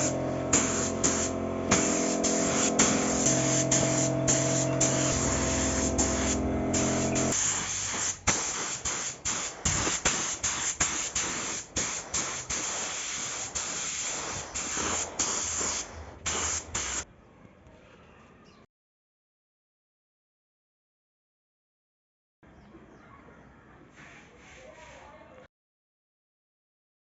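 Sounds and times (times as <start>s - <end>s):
spray paint can hissing: 0.0s - 17.0s.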